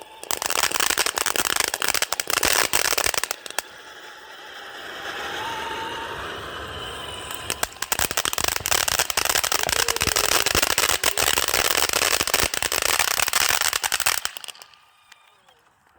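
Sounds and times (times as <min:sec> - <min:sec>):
fireworks crackling pops: 0:00.0 - 0:03.9, 0:07.1 - 0:15.9.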